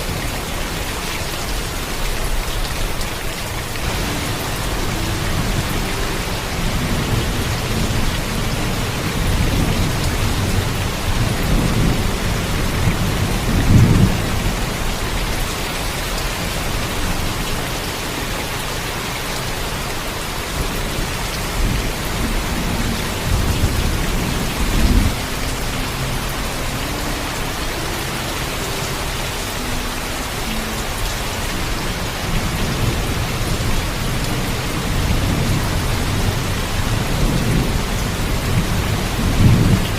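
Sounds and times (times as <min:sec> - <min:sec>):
heavy rain: 0:00.0 - 0:39.9
low rolling thunder: 0:03.8 - 0:15.6, 0:20.6 - 0:26.0, 0:32.2 - 0:39.9.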